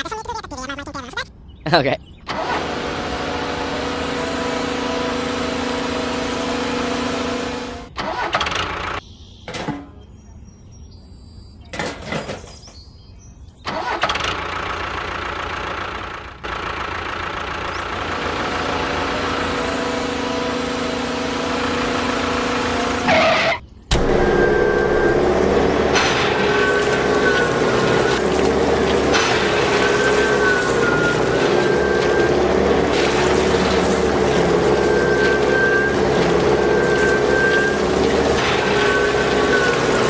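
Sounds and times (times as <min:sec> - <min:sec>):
small engine humming: 0:02.3 - 0:09.0, 0:13.7 - 0:40.0.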